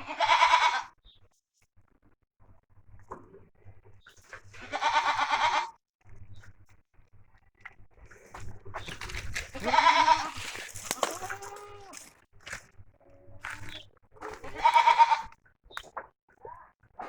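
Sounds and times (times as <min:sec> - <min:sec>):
goats bleating: 0:00.0 - 0:00.9, 0:04.6 - 0:05.8, 0:09.4 - 0:12.1, 0:13.4 - 0:15.4.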